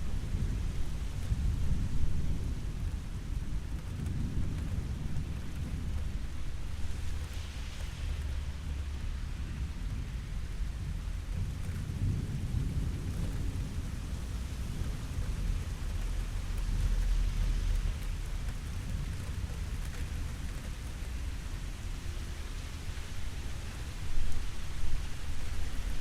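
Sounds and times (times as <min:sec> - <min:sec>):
steady rain: 0:00.0 - 0:26.0
thunder rumbling: 0:08.0 - 0:26.0.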